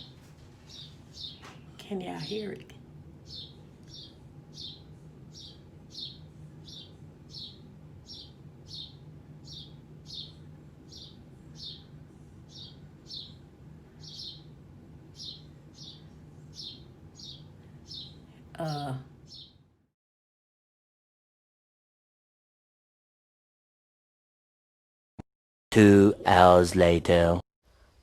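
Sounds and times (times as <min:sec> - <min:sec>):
bird chirping: 0:00.0 - 0:01.5, 0:03.2 - 0:19.6.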